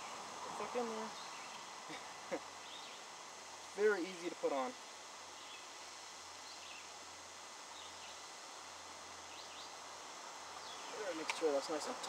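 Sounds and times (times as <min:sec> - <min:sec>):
outdoor background hiss: 0:00.0 - 0:12.0
bird chirps: 0:02.6 - 0:03.1.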